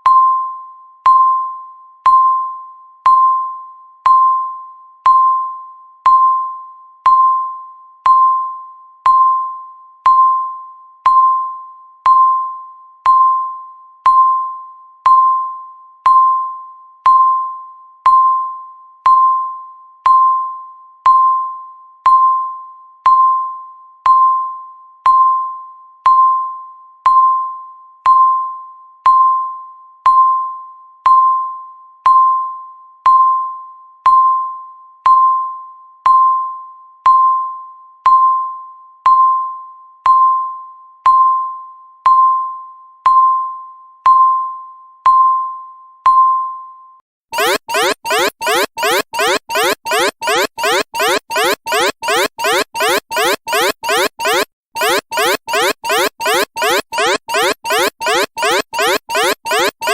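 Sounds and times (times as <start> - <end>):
electronic timer beep: 47.4 - 59.9.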